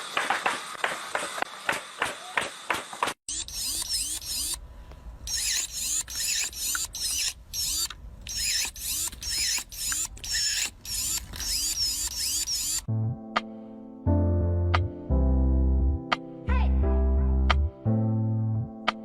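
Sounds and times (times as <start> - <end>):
squeaking hand-worked mechanism: 3.3 - 4.6, 5.2 - 12.9.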